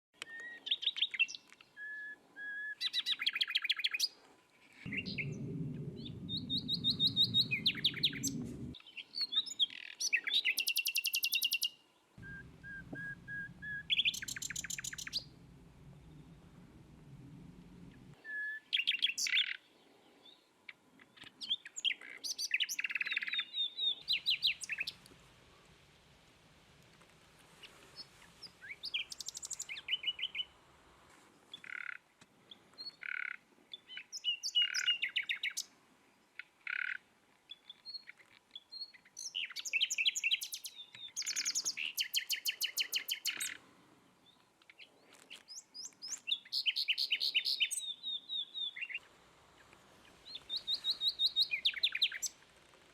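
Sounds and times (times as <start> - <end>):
songbirds trilling: 4.9 - 8.8, 12.2 - 19.6.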